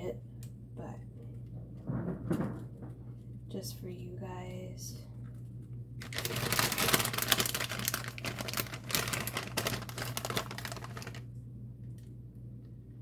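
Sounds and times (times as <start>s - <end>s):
plastic bag crinkling: 6.0s - 11.3s.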